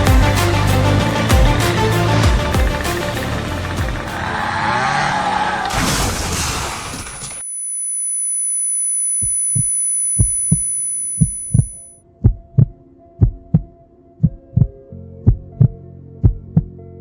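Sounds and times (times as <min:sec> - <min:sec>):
heartbeat thumps: 0:00.0 - 0:00.6, 0:01.3 - 0:03.0, 0:09.6 - 0:16.7
low droning hum: 0:00.0 - 0:05.5
high-pitched ringing tone: 0:07.4 - 0:12.0.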